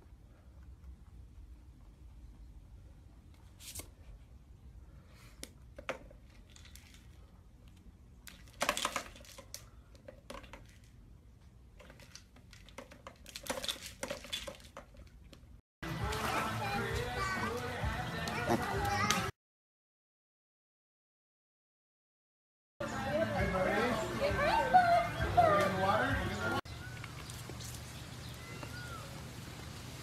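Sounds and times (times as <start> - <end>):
plastic toy rustling and clattering: 5.7 - 11.1, 11.7 - 15.6.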